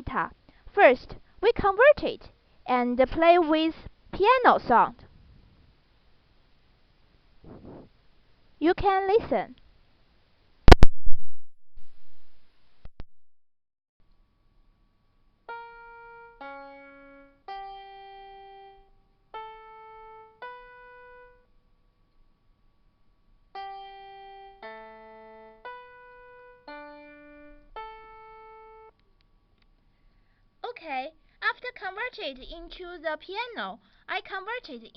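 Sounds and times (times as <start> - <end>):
loud click: 10.7 - 11.2
computer-generated piano notes: 23.6 - 28.9.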